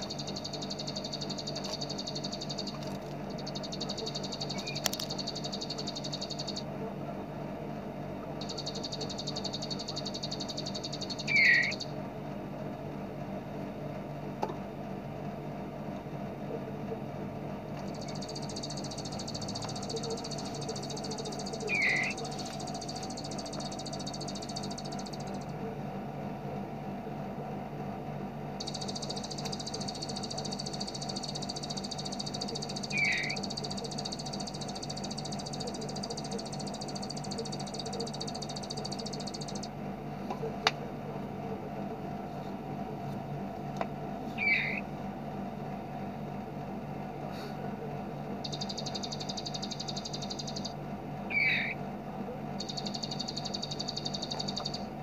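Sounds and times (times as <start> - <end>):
bird fast rattling trills: 8.4 - 11.9, 18.0 - 25.4, 28.6 - 39.7, 48.5 - 50.7, 52.6 - 54.8.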